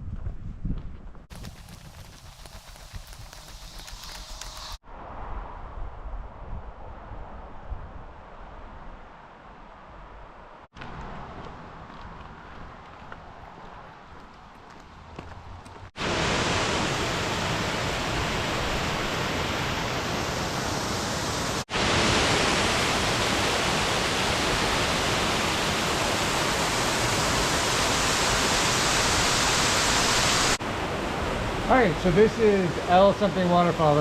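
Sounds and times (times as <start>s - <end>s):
waterfall rushing: 16.0s - 34.0s.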